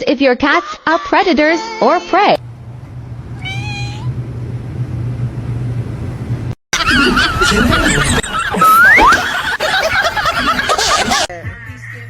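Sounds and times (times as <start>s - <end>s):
low steady hum: 2.4s - 6.6s
high-pitched giggling: 6.8s - 11.3s.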